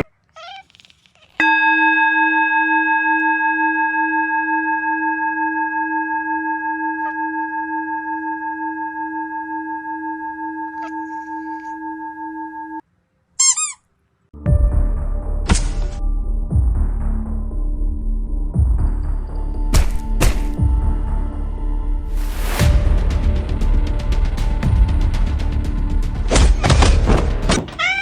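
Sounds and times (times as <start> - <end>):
struck metal bell ringing: 1.4 - 12.8.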